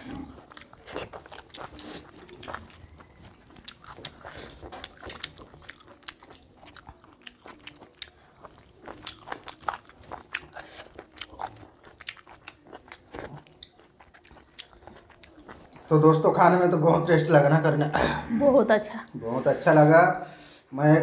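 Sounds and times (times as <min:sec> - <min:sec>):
chewing and biting food: 0:00.0 - 0:16.2.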